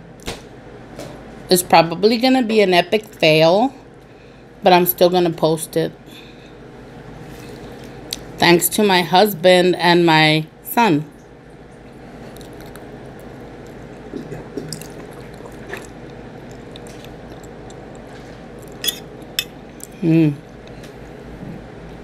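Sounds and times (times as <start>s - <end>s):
wet chewing: 11.7s - 20.0s
person humming: 20.0s - 20.4s.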